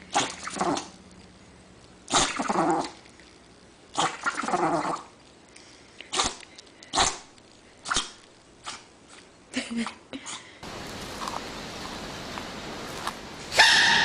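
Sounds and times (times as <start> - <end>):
dog sneezing: 2.1 - 2.8.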